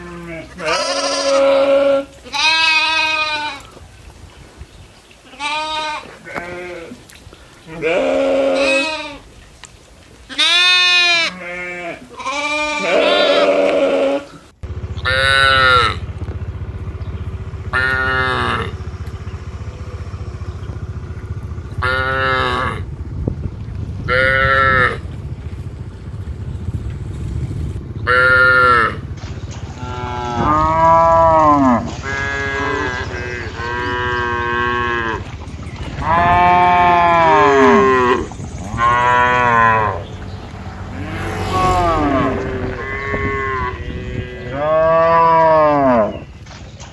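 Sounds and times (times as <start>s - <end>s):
cattle mooing: 0.0s - 3.7s, 7.7s - 9.3s, 10.3s - 14.4s, 15.0s - 16.2s, 17.5s - 22.9s, 24.1s - 25.1s, 28.0s - 46.3s
steady low rumble: 14.6s - 45.5s.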